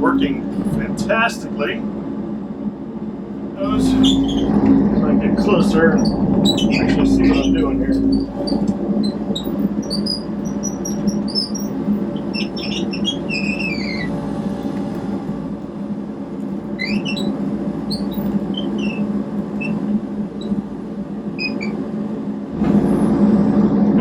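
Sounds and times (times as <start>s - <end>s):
excavator diesel engine running: 0.0s - 24.0s
high squeaks and chirps: 3.6s - 4.9s, 5.5s - 14.2s, 16.8s - 19.8s, 21.4s - 21.8s.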